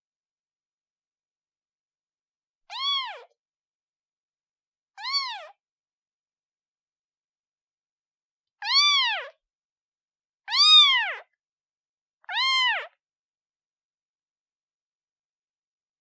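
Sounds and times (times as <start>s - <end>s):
kitten meowing: 2.7s - 3.4s, 5.0s - 5.6s, 8.6s - 9.4s, 10.5s - 11.3s, 12.3s - 13.0s.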